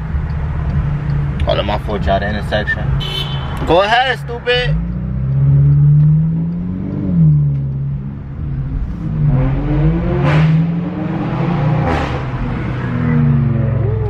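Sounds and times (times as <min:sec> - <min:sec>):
car engine accelerating hard: 0:04.6 - 0:14.0.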